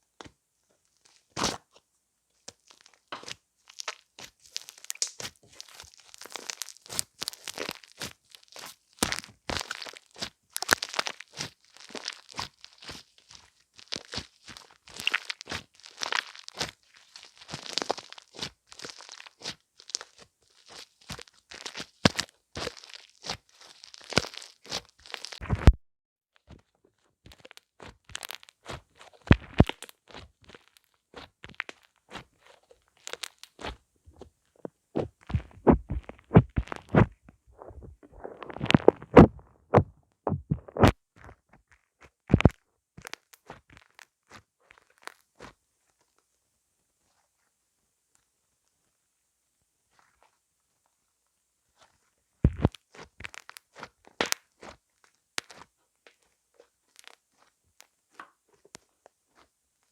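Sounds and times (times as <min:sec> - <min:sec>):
crunching and crinkling: 0:00.9 - 0:01.8, 0:02.4 - 0:25.8, 0:26.4 - 0:46.2, 0:49.9 - 0:50.4, 0:51.7 - 0:59.6
irregular knocks clicks and crunches: 0:26.4 - 0:31.9, 0:32.9 - 0:45.2, 0:52.4 - 0:54.7.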